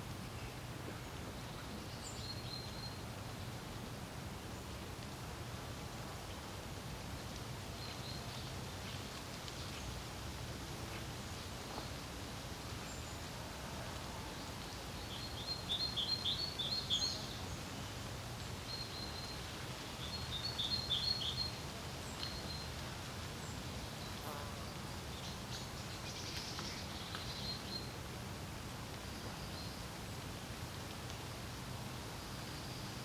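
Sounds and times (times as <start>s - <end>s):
songbirds singing: 1.3s - 3.6s, 14.3s - 22.8s, 23.4s - 28.0s.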